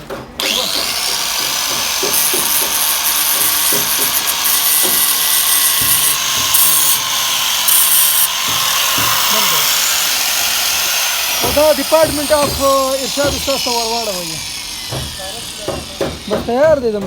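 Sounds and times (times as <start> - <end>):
power tool whining: 0.4 - 17.0.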